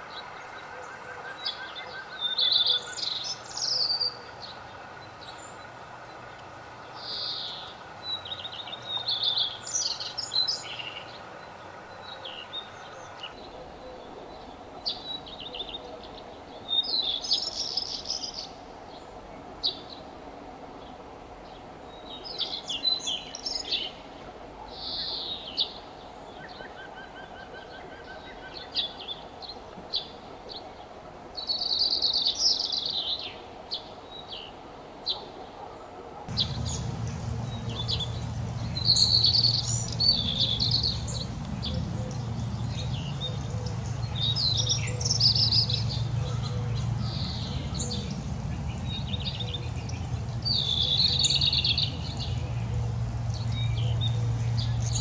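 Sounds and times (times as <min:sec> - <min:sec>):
small birds chirping: 0:01.3 - 0:20.0, 0:36.3 - 0:55.0
steady low hum: 0:36.3 - 0:55.0.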